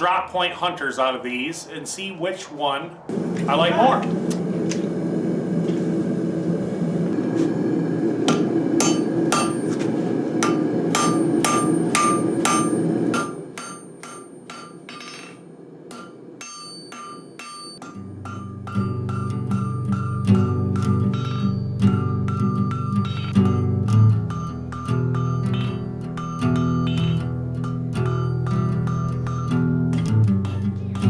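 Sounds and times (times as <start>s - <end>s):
low rushing noise: 0.2s - 19.6s
hammer striking steel on anvil: 8.3s - 31.0s.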